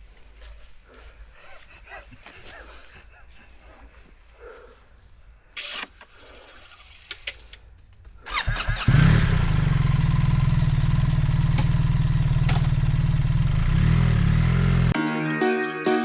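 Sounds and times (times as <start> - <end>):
motorcycle engine starting: 5.6 - 15.0
motorcycle engine idling: 8.3 - 15.0.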